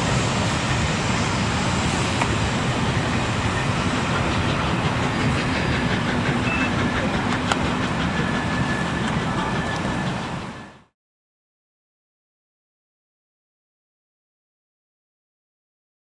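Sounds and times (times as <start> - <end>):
train rolling past: 0.0 - 11.0
wheels clicking over rail joints: 4.1 - 10.2.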